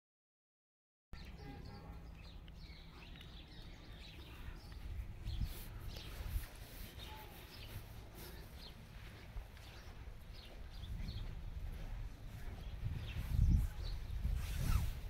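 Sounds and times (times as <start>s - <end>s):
small birds chirping: 1.2s - 15.0s
steady low rumble: 7.7s - 14.3s.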